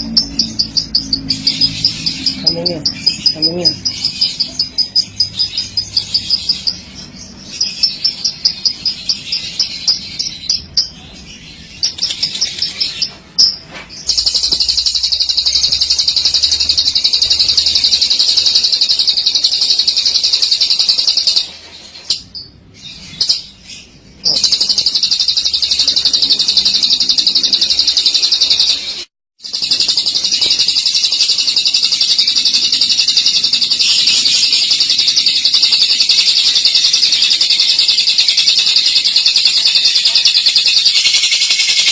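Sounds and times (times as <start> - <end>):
lovebird chattering trill: 0.0 - 41.9.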